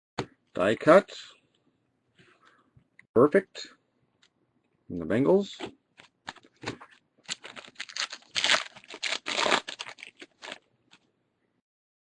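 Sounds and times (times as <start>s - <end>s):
foil wrapper crinkling and tearing: 7.2s - 11.1s.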